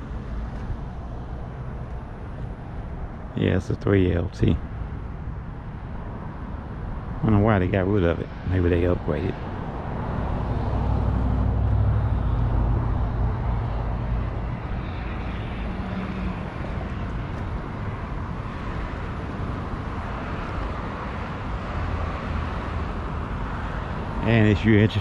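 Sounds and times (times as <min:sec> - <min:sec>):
traffic rush: 0:00.0 - 0:25.0
passing engine drone: 0:09.7 - 0:25.0.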